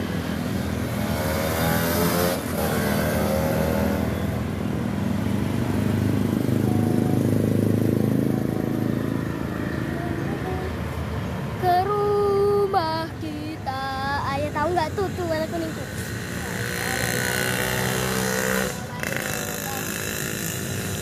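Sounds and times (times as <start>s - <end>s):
vehicle engine accelerating: 0.0s - 11.6s.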